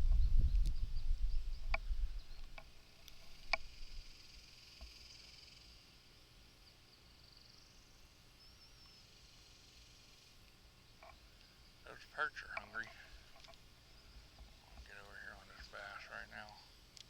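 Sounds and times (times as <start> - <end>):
high-pitched insect hum: 0.1 - 10.4.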